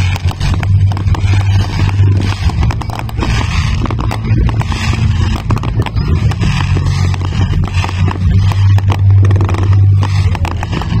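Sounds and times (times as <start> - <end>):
deep continuous rumble: 0.0 - 11.0
fireworks bangs and crackles: 0.0 - 11.0.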